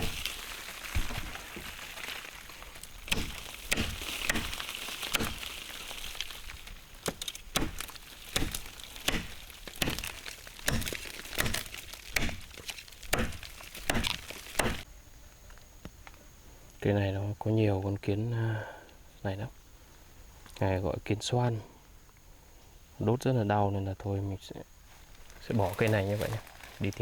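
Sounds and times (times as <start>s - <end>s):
blade chopping into wood: 0.0s - 0.3s, 3.0s - 5.5s, 7.0s - 14.8s.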